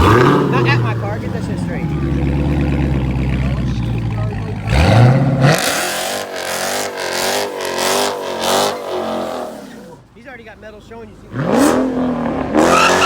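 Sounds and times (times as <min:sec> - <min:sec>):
car engine revving: 0:00.0 - 0:13.0
tyres squealing: 0:12.5 - 0:13.0.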